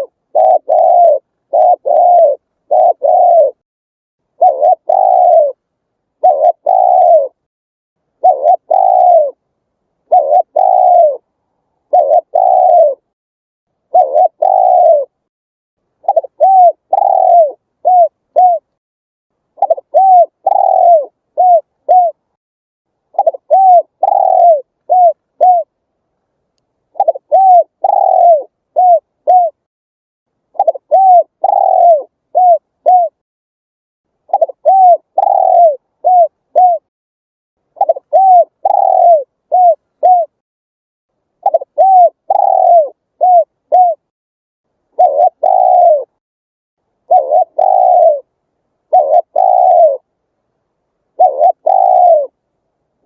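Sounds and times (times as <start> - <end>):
dove cooing: 0.0 - 3.6, 4.4 - 5.6, 6.2 - 7.5, 8.2 - 9.4, 10.0 - 13.1, 13.9 - 15.2, 16.0 - 18.8, 19.6 - 22.2, 23.1 - 25.8, 26.9 - 29.6, 30.5 - 33.2, 34.3 - 36.9, 37.8 - 40.4, 41.4 - 44.1, 44.9 - 46.2, 47.0 - 48.3, 48.9 - 50.1, 51.1 - 52.4.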